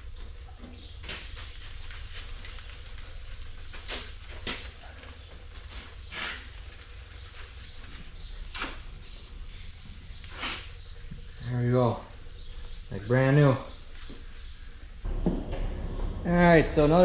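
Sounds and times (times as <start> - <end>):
towel swishing on metal: 0.3 - 15.1
low machine hum: 10.8 - 17.0.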